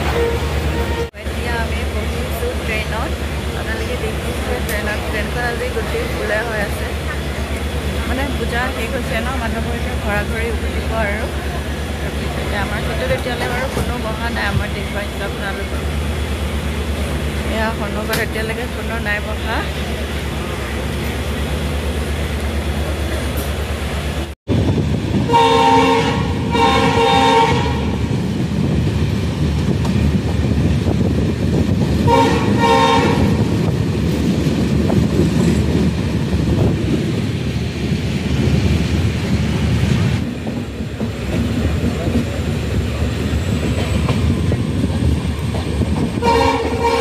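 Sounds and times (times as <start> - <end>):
train horn blasts: 0.0 - 1.2, 25.2 - 28.0, 32.0 - 33.5, 46.2 - 47.0
train wheels rumbling and clattering: 0.0 - 47.0.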